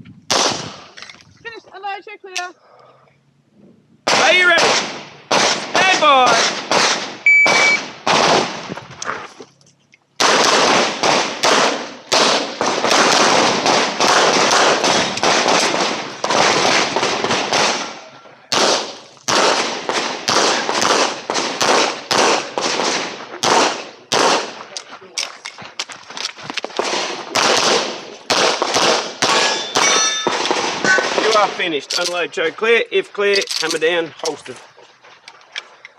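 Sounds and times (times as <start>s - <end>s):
handgun firing rapid shots: 6.4s - 8.5s, 10.2s - 17.9s, 18.5s - 24.6s, 26.8s - 32.1s
shot timer beep: 7.3s - 7.8s.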